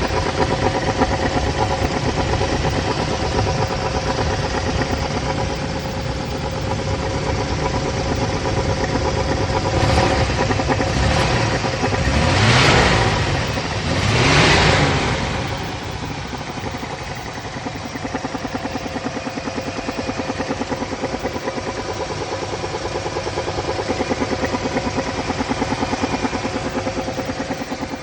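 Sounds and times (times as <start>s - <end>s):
car engine idling with rhythmic pulse: 0.0s - 28.0s.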